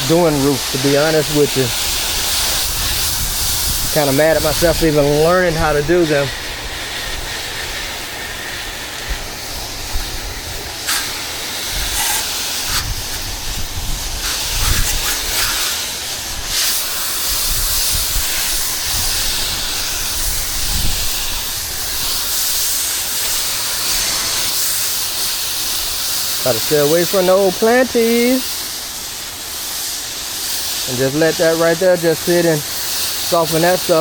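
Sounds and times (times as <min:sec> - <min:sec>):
pressure washer spraying water: 0:00.0 - 0:34.0.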